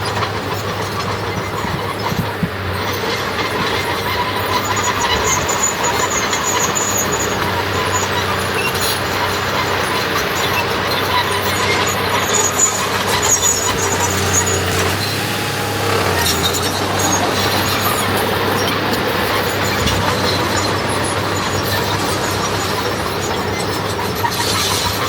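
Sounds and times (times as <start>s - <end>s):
heavy diesel machinery running: 8.0s - 22.6s
short high squeals: 13.1s - 18.2s.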